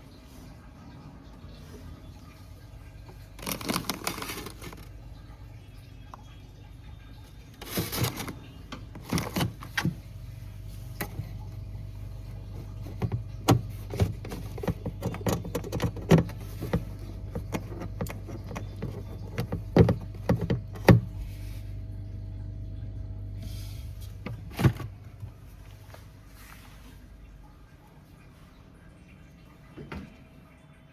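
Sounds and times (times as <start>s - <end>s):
refrigerator humming: 0.0s - 30.9s
clicks and knocks of parts: 12.9s - 21.1s.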